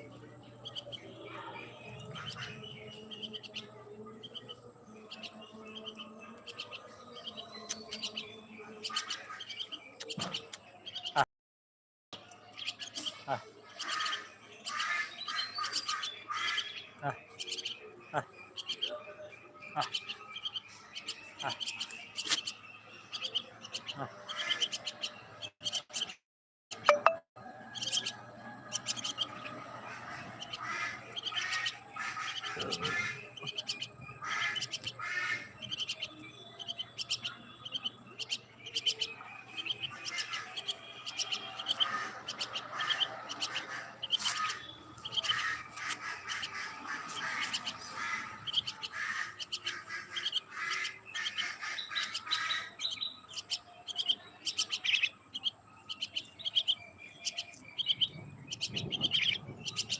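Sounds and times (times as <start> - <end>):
birds chirping: 0.0 - 11.3, 12.2 - 59.9
harsh bird squawk: 13.0 - 17.2, 29.0 - 55.1.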